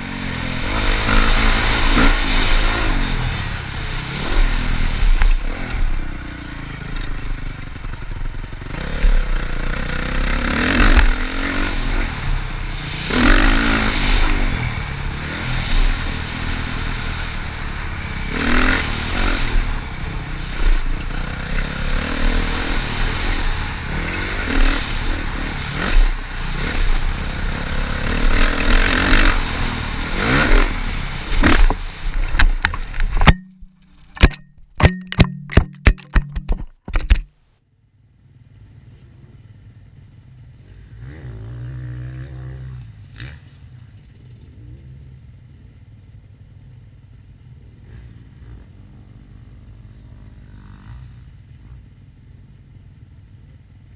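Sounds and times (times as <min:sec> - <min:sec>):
motocross bike engine revving: 0:00.0 - 0:36.6, 0:40.6 - 0:45.2.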